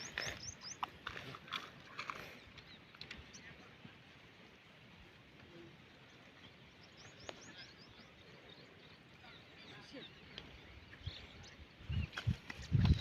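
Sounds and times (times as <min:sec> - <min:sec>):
faint bird chirps: 0:05.5 - 0:13.0.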